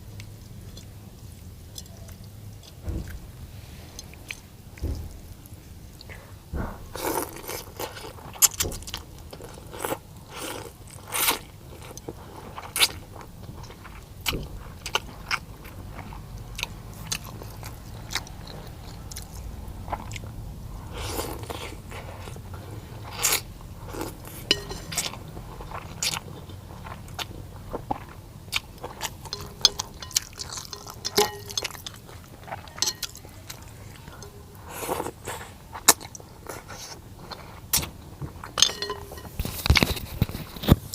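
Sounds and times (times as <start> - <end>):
person crunching and chewing: 20.9 - 40.9.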